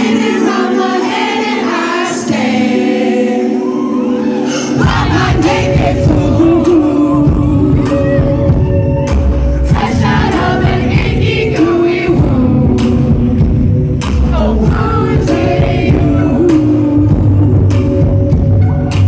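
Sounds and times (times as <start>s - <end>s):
person singing: 0.0s - 19.0s
bass and drums: 4.8s - 19.0s.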